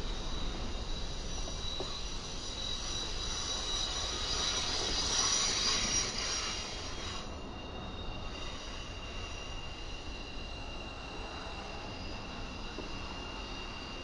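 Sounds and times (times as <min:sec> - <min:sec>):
freight train rumbling: 0:00.0 - 0:14.0
high-pitched wheel squealing: 0:00.1 - 0:14.0.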